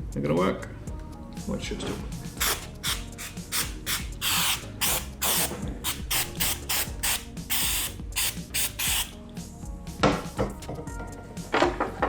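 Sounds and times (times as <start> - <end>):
aerosol spray hissing bursts: 2.4 - 9.2.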